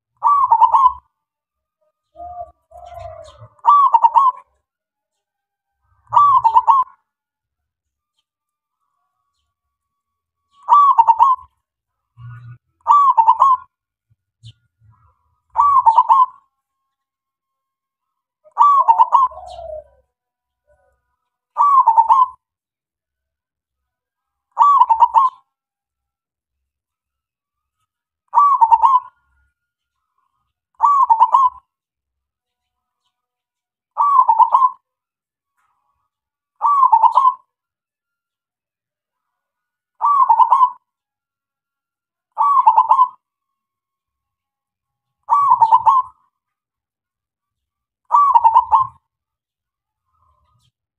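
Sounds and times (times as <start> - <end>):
dove cooing: 0.2 - 1.1, 2.0 - 4.6, 6.0 - 7.0, 10.6 - 11.6, 12.2 - 13.7, 15.0 - 16.4, 18.4 - 20.1, 21.6 - 22.4, 24.6 - 25.4, 28.3 - 29.2, 30.8 - 31.6, 34.0 - 34.8, 36.6 - 37.5, 40.0 - 40.8, 42.4 - 43.2, 45.3 - 46.2, 48.1 - 49.0.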